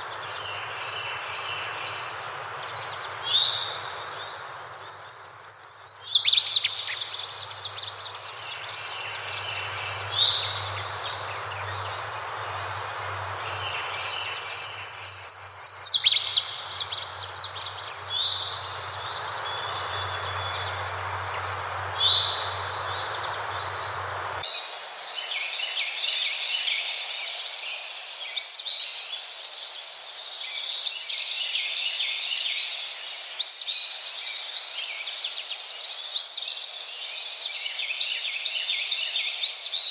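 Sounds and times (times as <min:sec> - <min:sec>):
running water: 0:00.0 - 0:24.5
sweeping bird chirps: 0:00.0 - 0:24.5
birds singing: 0:00.0 - 0:26.0
low hum: 0:16.0 - 0:24.4.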